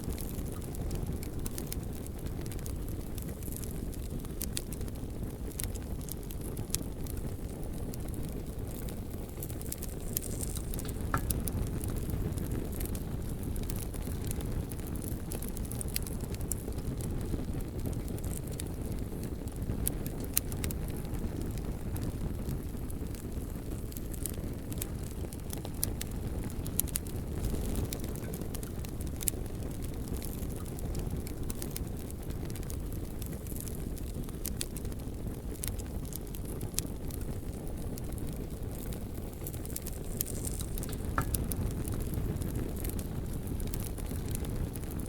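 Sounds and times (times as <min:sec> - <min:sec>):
bonfire flames roaring: 0:00.0 - 0:45.0
burning logs crackling and popping: 0:00.0 - 0:45.0.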